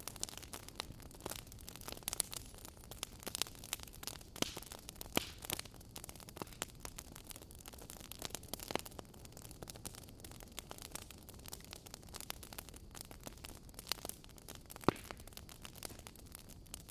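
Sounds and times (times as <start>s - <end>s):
fire popping: 0.0s - 16.9s
wood fire crackling: 0.0s - 16.9s.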